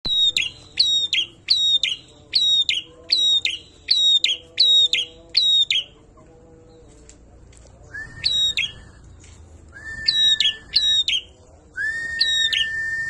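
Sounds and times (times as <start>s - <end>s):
bird singing whistled phrases: 0.1s - 5.9s, 7.9s - 9.0s, 9.8s - 13.0s.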